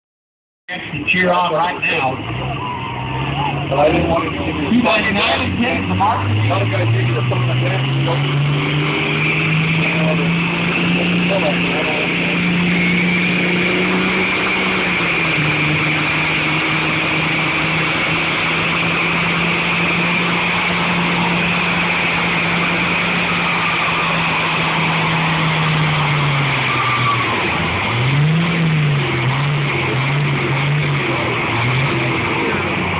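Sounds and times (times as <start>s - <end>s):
truck engine revving under load: 0.7s - 32.9s.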